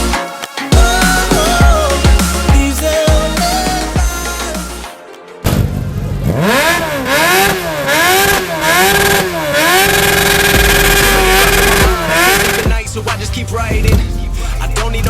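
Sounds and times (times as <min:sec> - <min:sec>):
motorcycle engine revving: 0:06.3 - 0:15.0.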